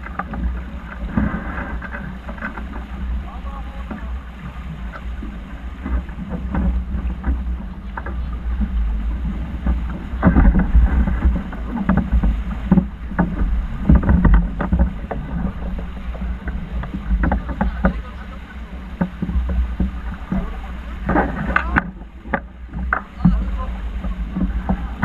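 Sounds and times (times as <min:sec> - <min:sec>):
water splashing against hull: 0:00.0 - 0:25.0
wind rumbling on microphone: 0:00.0 - 0:25.0
irregular knocks: 0:16.2 - 0:18.1.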